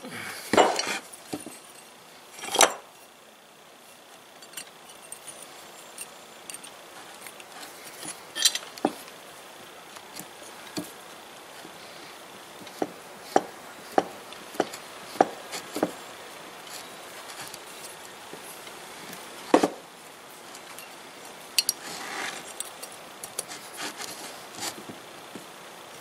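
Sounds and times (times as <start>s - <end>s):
metal clinks: 3.9s - 8.9s, 21.6s - 21.9s
metal scrape: 4.4s - 8.7s, 21.6s - 22.7s.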